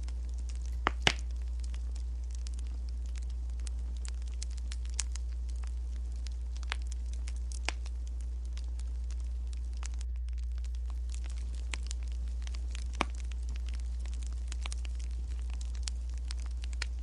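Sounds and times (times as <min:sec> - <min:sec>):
sharp fire pops: 0:00.0 - 0:17.0
steady low hum: 0:00.0 - 0:17.0
wood fire crackling: 0:00.0 - 0:17.0.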